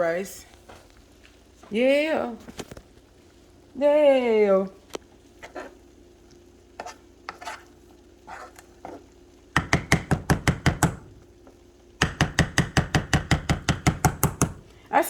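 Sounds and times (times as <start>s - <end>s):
knife chopping on cutting board: 9.6s - 11.2s, 12.0s - 14.7s.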